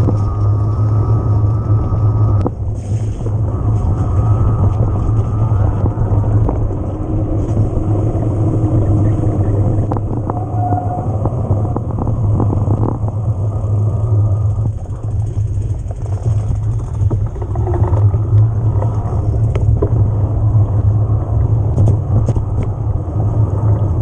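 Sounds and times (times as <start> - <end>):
tyres over rough ground: 0.0 - 24.0
wind rumble on microphone: 0.0 - 24.0
bike rattles and knocks: 14.5 - 20.1.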